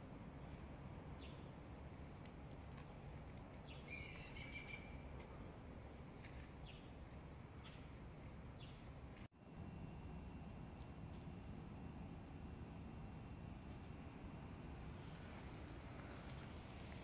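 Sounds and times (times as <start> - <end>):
faint low rumble: 0.0 - 17.0
bird chirps: 3.6 - 5.0.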